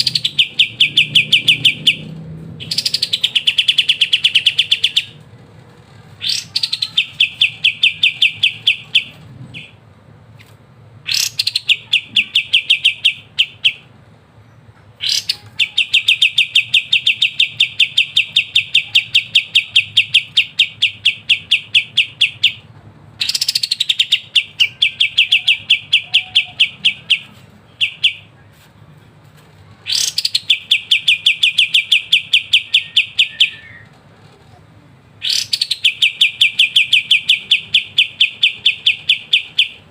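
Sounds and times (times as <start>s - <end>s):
songbird singing fast trills: 0.0s - 5.2s.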